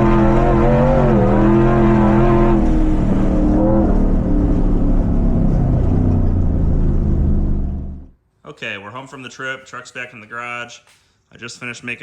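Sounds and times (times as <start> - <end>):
truck engine revving: 0.0 - 8.1.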